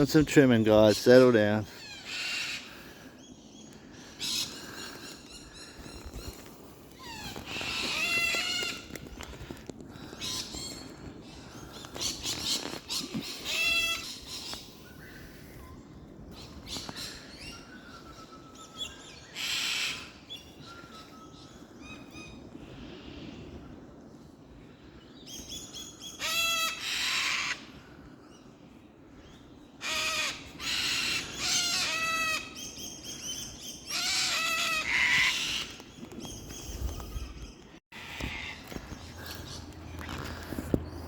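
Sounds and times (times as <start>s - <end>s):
cockatoos squawking and screeching: 1.7s - 3.0s, 4.0s - 9.4s, 11.9s - 14.7s, 19.3s - 20.3s, 26.2s - 27.7s, 29.8s - 32.6s, 33.9s - 35.8s, 38.0s - 40.6s.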